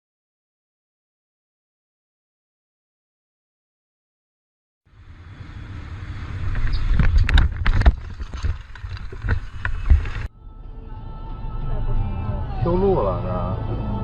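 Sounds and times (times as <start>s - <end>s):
car road noise: 4.9s - 14.0s.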